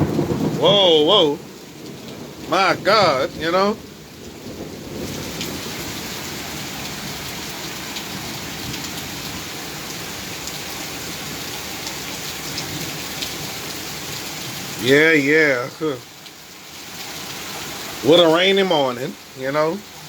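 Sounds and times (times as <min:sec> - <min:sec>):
heavy rain hissing: 0:00.0 - 0:20.0
raindrops ticking on surfaces: 0:00.0 - 0:20.0.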